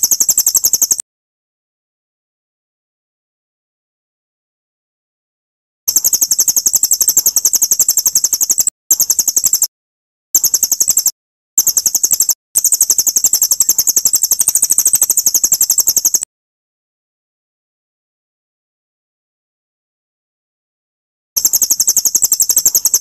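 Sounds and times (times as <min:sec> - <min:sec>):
songbird fast sharp chirps: 0:00.0 - 0:01.0, 0:05.9 - 0:09.7, 0:10.4 - 0:16.3, 0:21.4 - 0:23.0.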